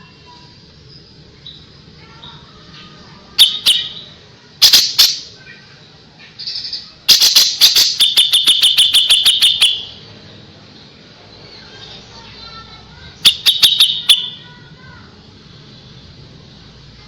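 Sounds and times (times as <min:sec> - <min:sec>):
bird singing sharp rapid notes: 0:03.4 - 0:05.3, 0:06.4 - 0:10.1, 0:13.2 - 0:14.4.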